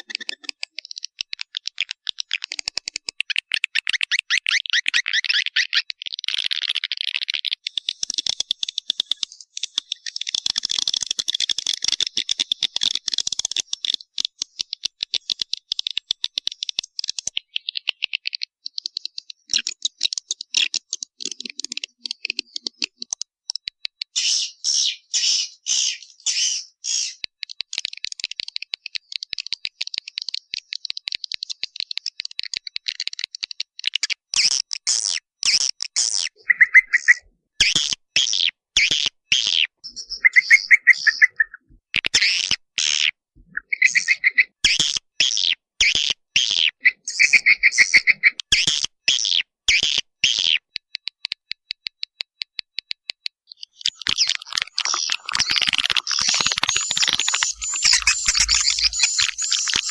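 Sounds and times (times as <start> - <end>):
loud pulsed bird call bursts: 36.4 - 37.3, 39.9 - 41.6, 43.6 - 44.5, 56.2 - 59.9
swiftlets clicking and chittering: 53.8 - 59.9.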